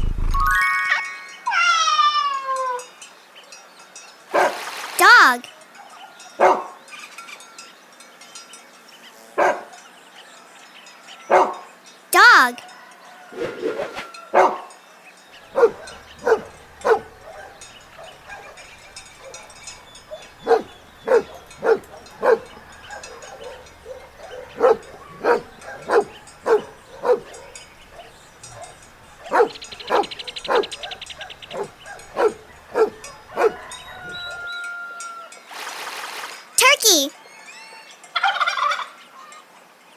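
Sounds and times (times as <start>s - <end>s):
dog barking: 6.4s - 6.7s, 9.4s - 9.7s, 11.3s - 11.6s, 15.5s - 34.4s.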